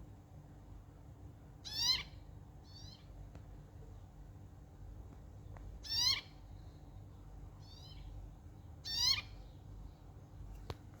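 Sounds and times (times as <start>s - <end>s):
birds calling: 1.6s - 3.2s, 5.5s - 10.1s.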